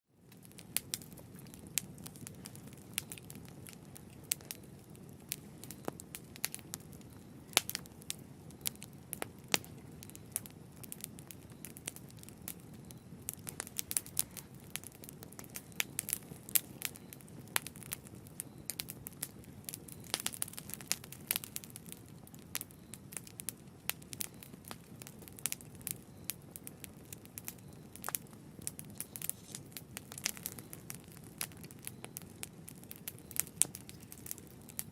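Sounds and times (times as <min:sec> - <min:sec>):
low rumble of burning fire: 0:00.1 - 0:34.9
wood fire crackling: 0:00.2 - 0:34.9
sharp pops and snaps: 0:27.4 - 0:34.9.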